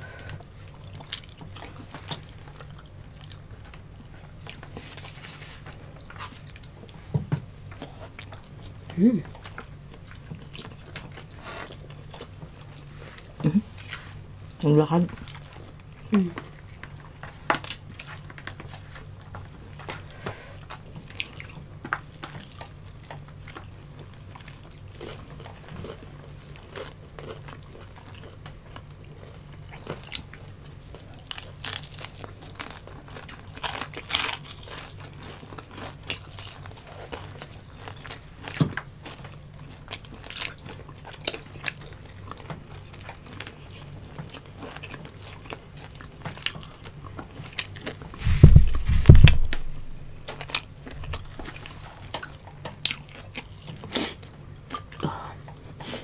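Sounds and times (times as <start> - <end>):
crunching and chewing food: 0.0 - 56.0
steady low hum: 34.2 - 56.0.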